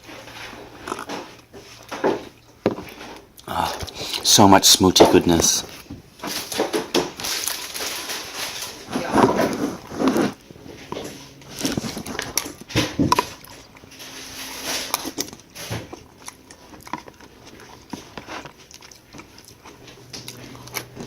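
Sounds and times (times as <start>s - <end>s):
handling clicks and rustles: 4.8s - 21.0s.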